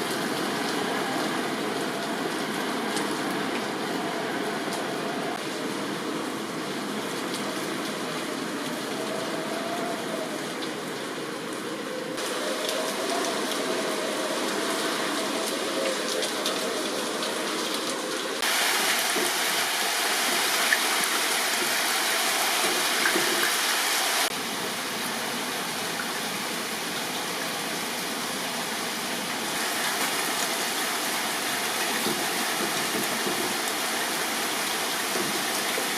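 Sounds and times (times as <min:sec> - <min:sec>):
heavy rain pouring: 0:00.0 - 0:35.9.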